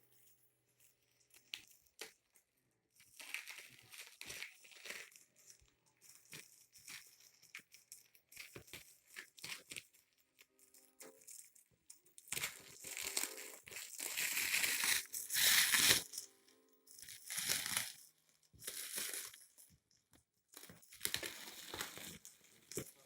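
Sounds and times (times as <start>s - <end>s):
packaging crinkling and tearing: 3.1s - 5.2s, 12.2s - 16.1s, 17.1s - 18.0s, 20.9s - 23.0s.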